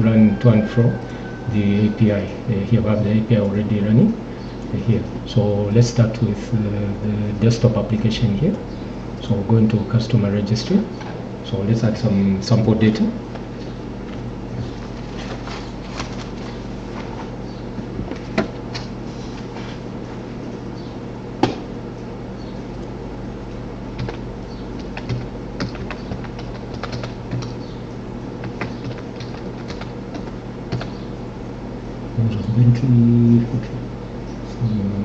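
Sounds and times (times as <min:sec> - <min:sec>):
low electrical hum: 0:00.0 - 0:35.0
computer keyboard typing: 0:24.0 - 0:24.2, 0:24.8 - 0:27.6, 0:28.4 - 0:30.9.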